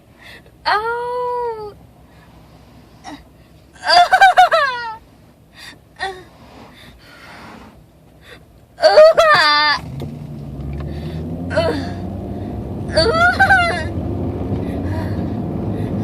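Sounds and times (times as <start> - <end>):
car engine rumble: 0.0 - 16.0
woman sobbing wails: 3.8 - 5.0, 8.8 - 9.8, 11.5 - 12.1, 12.9 - 14.0
sharp gasping breaths: 5.5 - 8.5, 10.8 - 12.6.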